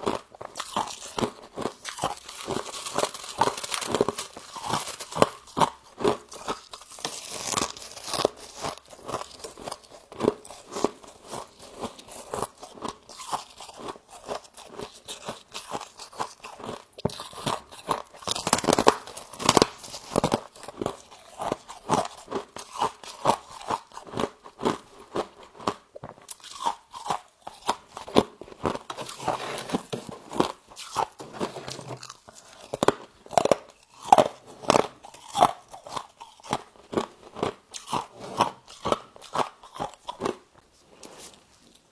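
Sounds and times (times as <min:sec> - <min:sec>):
crunching on ice: 0:00.0 - 0:41.4.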